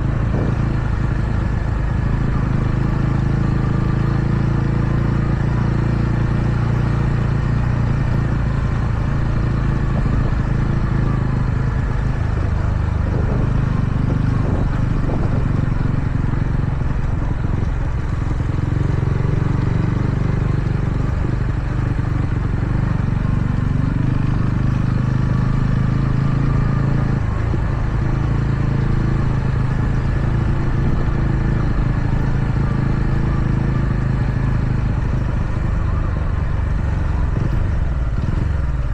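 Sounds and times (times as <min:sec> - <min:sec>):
steady rushing noise: 0:00.0 - 0:05.5
motorcycle engine revving: 0:00.0 - 0:38.9.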